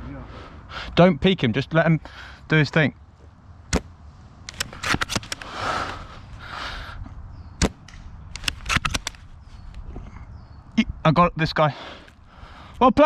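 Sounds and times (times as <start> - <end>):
airsoft gunfire pops: 7.6 - 9.3.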